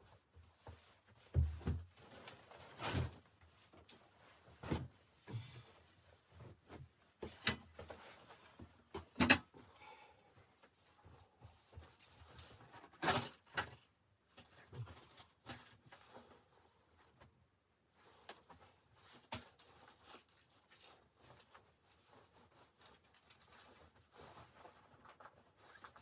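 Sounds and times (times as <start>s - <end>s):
knocks and clatter of handling: 0.7s - 9.6s.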